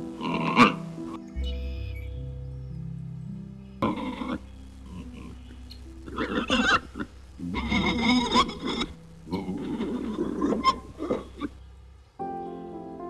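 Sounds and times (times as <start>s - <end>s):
wild pigs grunting and squealing: 0.2s - 0.8s, 3.8s - 11.6s.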